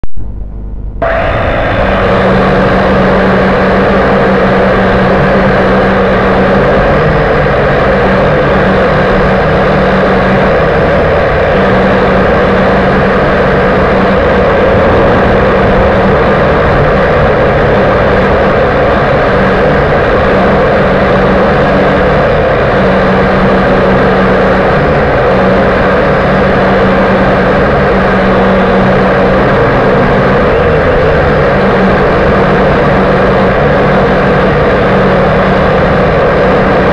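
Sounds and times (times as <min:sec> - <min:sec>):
quadcopter propellers whirring: 0:01.0 - 0:36.9.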